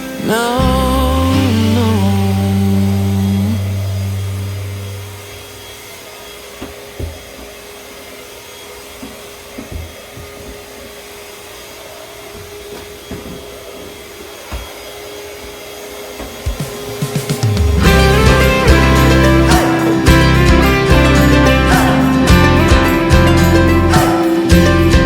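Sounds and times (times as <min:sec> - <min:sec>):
song: 0:00.2 - 0:05.3, 0:16.6 - 0:25.0.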